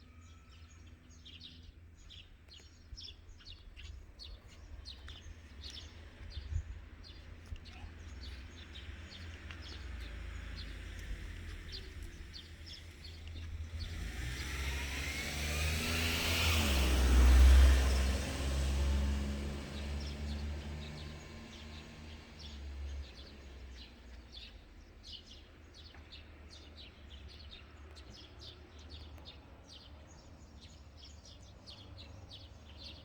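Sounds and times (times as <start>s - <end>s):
car approaching on road: 0.2s - 33.0s.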